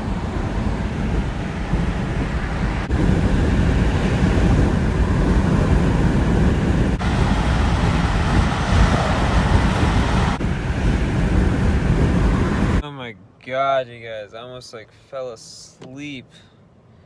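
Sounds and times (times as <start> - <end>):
traffic road noise rumble: 0.0 - 13.4.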